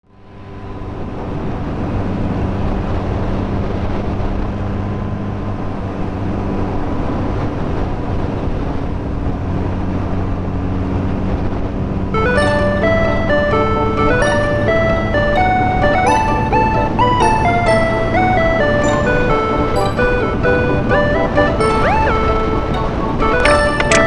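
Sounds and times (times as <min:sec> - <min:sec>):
music: 0:12.2 - 0:24.0.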